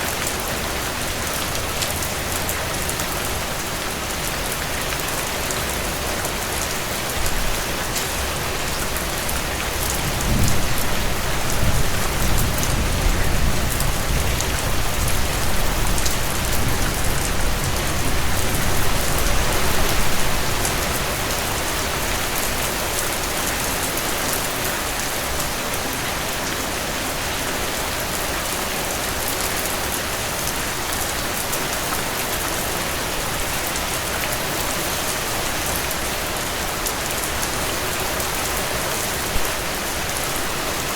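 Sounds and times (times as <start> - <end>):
heavy rain falling: 0.0 - 40.9
thunder rumbling: 10.0 - 20.4.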